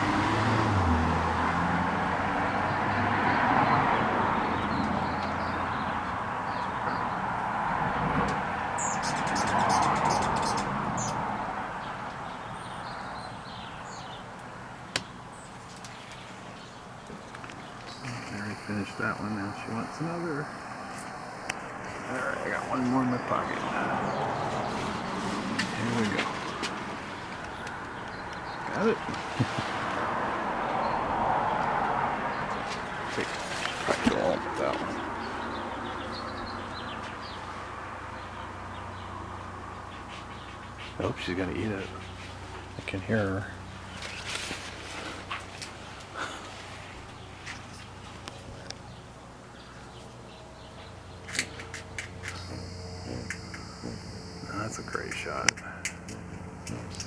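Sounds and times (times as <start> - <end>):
small birds chirping: 2.6 - 30.0, 30.6 - 57.0
steady low hum: 45.6 - 57.0.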